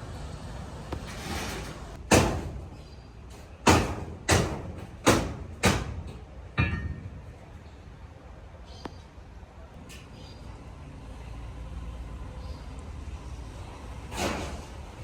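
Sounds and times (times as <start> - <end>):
heavy blows on sheet steel: 2.0 - 7.5.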